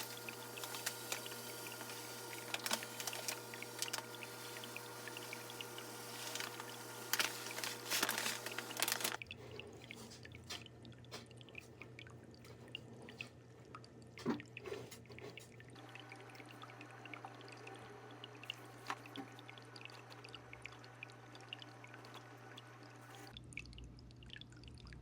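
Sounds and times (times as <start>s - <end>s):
soil grains pouring into tank: 0.0s - 9.2s.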